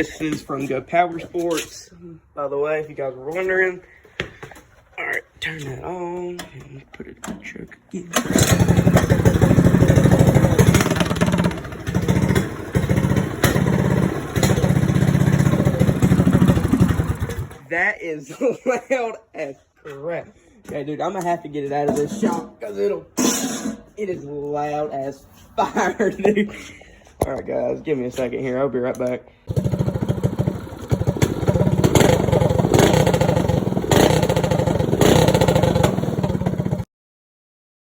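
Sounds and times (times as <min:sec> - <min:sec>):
loud small engine exhaust: 0:08.2 - 0:17.6, 0:29.5 - 0:36.8.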